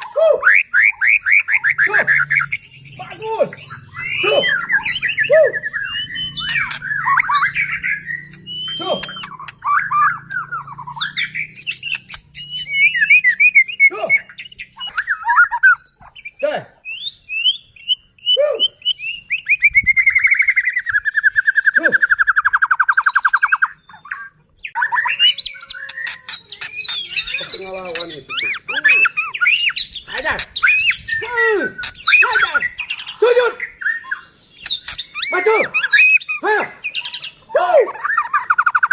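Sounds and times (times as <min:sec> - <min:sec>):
bird singing whistles and chatter: 0:00.0 - 0:38.9.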